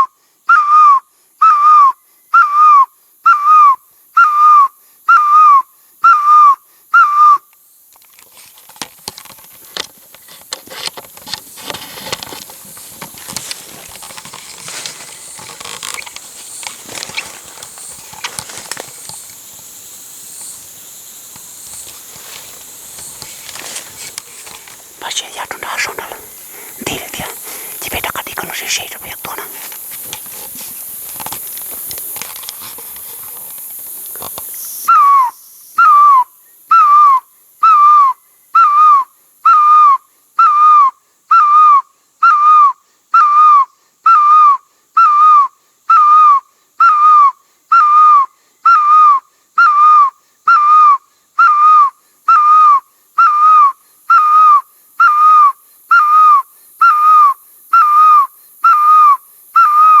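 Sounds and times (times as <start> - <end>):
whistled bird-like call: 0.0 - 7.5, 34.9 - 60.0
hiss: 6.6 - 59.7.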